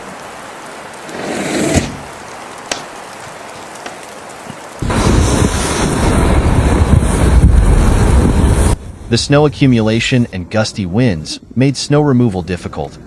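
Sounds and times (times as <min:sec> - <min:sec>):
loud low rumbling noise: 0:04.8 - 0:09.2.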